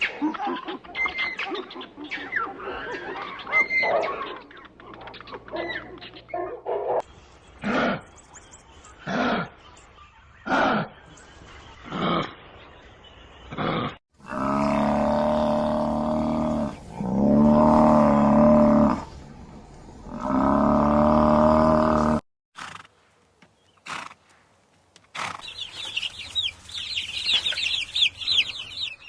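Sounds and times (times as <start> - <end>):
animal grunting calls: 7.6 - 8.1, 9.0 - 9.6, 10.4 - 11.1, 11.8 - 12.4, 13.5 - 19.1, 20.1 - 22.2.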